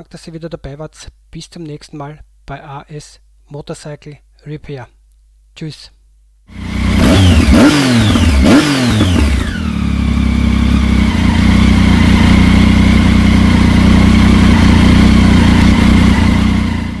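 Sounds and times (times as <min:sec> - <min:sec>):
motorcycle engine idling: 0:06.5 - 0:17.0.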